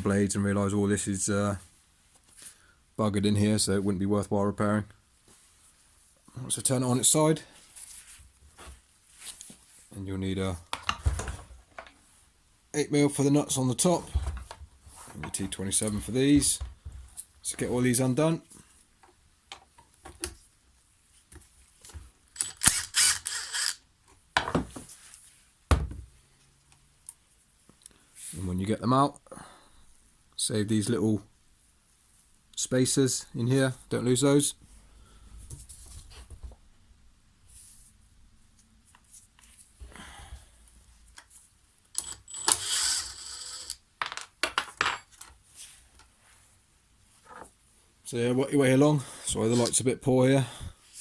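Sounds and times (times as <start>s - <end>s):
ratchet clicking: 22.4s - 23.8s.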